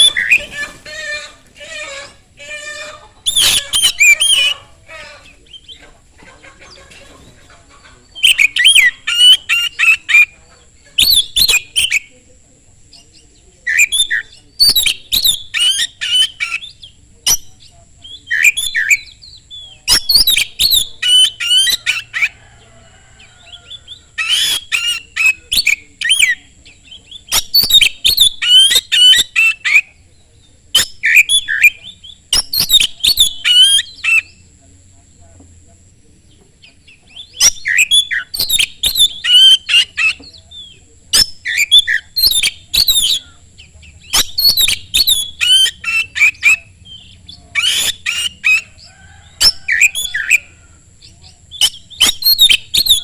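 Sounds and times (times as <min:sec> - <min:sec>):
bird singing whistled notes: 0:03.2 - 0:04.6, 0:08.2 - 0:10.4, 0:11.0 - 0:12.1, 0:13.0 - 0:22.3, 0:23.8 - 0:34.5, 0:36.6 - 0:53.0.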